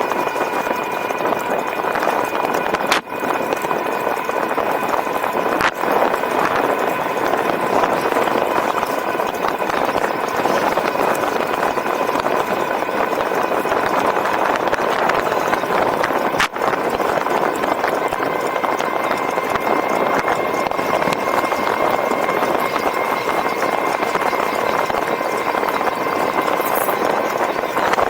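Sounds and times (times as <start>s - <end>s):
electric motor whine: 0.0s - 28.0s
wind and road rush: 0.0s - 28.0s.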